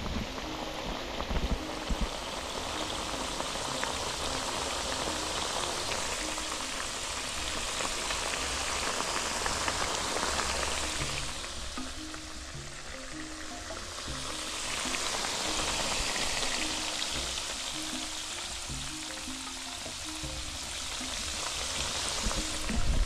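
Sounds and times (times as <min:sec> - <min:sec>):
potatoes deep-frying in oil: 0:00.0 - 0:23.0.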